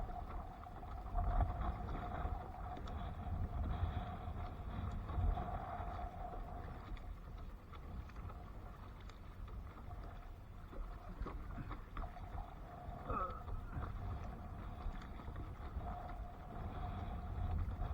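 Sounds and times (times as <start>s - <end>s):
wind on microphone: 0.0s - 10.4s, 11.0s - 17.9s
faint steady hum: 0.0s - 17.9s
water sloshing against hull: 0.0s - 17.9s.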